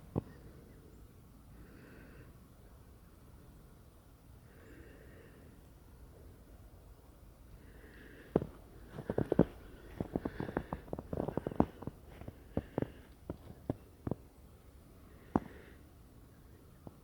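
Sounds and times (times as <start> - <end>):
footsteps crunching in snow: 8.4 - 14.2.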